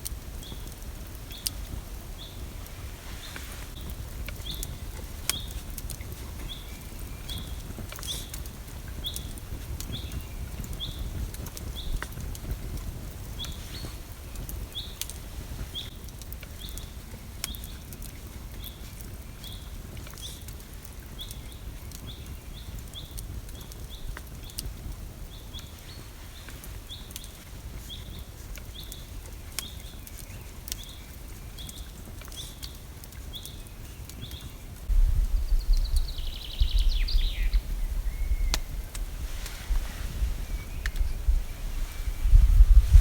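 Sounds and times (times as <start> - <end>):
wind buffeting microphone: 0.0 - 20.0, 34.2 - 43.0.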